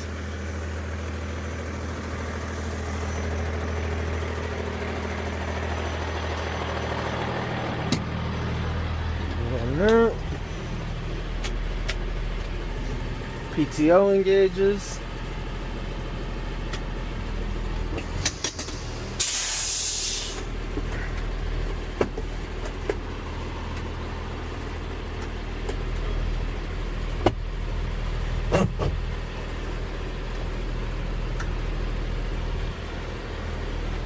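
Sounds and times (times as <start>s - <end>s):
diesel engine idling: 0.0s - 34.0s
air hiss burst: 19.2s - 20.5s.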